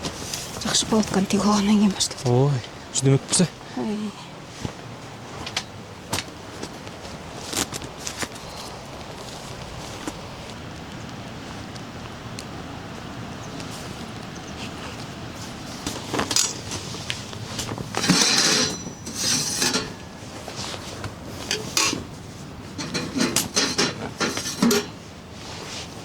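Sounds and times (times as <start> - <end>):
metal scraping: 16.2 - 25.5
metal cookware clinking: 17.9 - 20.3, 21.4 - 25.0.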